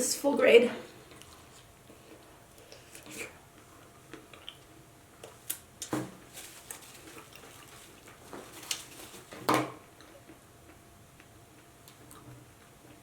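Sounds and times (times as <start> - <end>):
chewing mouth clicks and smacks: 4.1 - 5.5.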